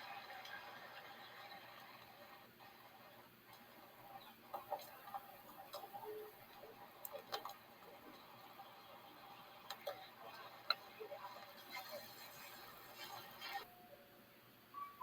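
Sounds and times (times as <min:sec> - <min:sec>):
faint scattered clicks: 0:01.8 - 0:13.7.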